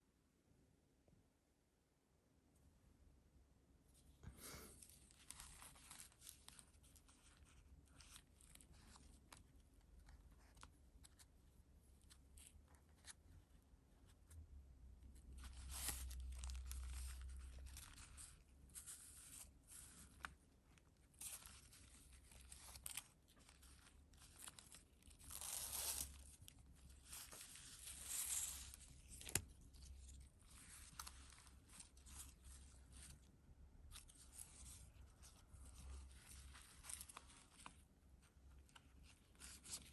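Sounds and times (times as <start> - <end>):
paper rustling and crinkling: 4.8 - 11.3, 15.2 - 39.9.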